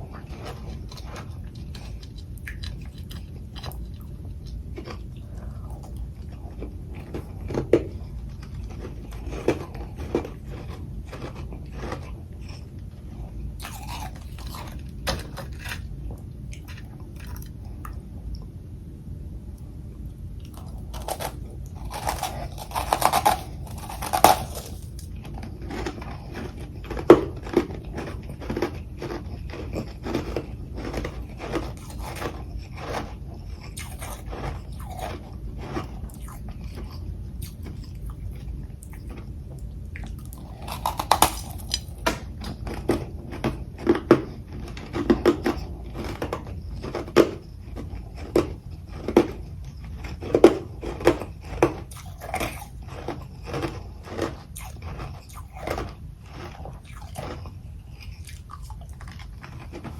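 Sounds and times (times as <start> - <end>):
chewing ice: 0.0 - 18.5, 19.6 - 59.9
crunching ice bites: 20.5 - 25.1, 40.3 - 42.0.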